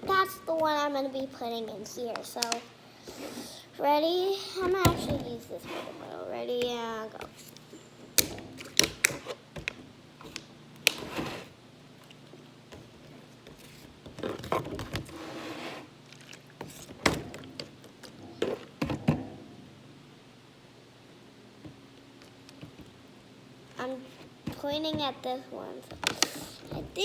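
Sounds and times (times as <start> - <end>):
bottles sliding: 13.6 - 17.0.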